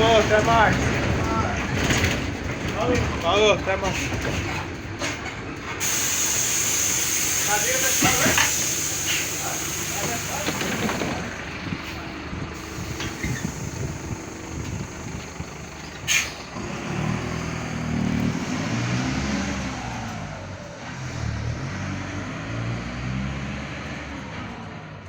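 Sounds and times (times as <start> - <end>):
bus diesel engine pulling away: 0.0 - 25.0
sharp hiss of air: 5.8 - 11.0, 12.6 - 14.9, 16.0 - 16.4.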